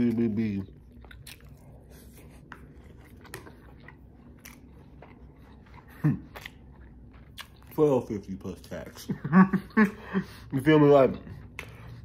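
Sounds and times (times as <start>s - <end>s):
person chewing food: 0.0s - 10.3s, 10.9s - 12.0s.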